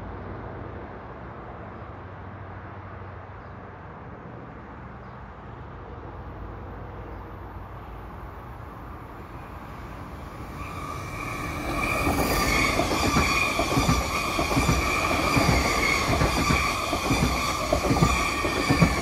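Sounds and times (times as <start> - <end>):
train wheels clicking over rails: 10.6 - 19.0.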